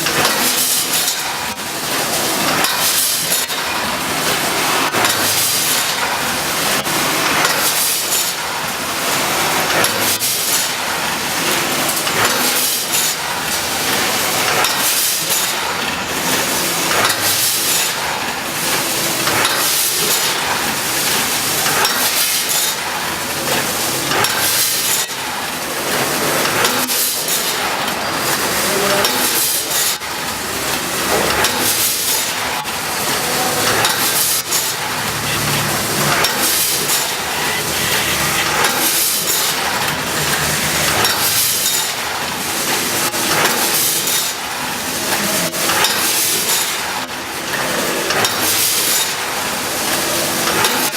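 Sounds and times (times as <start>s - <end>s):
packaging machine clattering: 0.0s - 50.9s
machine knock and hiss: 30.7s - 47.2s.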